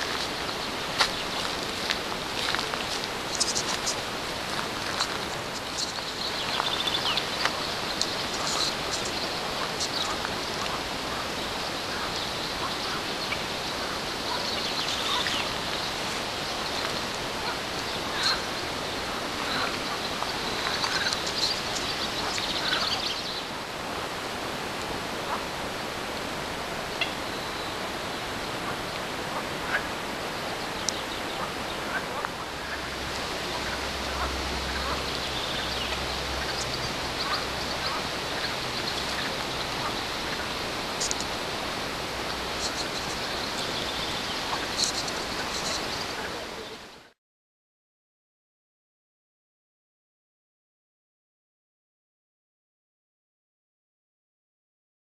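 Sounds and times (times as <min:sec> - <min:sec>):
birds chirping: 0:00.0 - 0:23.6, 0:29.6 - 0:47.0
steady rushing hiss: 0:00.0 - 0:47.1.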